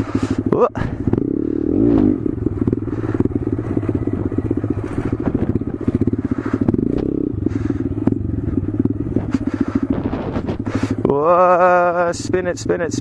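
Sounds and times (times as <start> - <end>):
motorcycle engine revving: 0.0 - 13.0
light clicks and scrapes: 9.2 - 11.0.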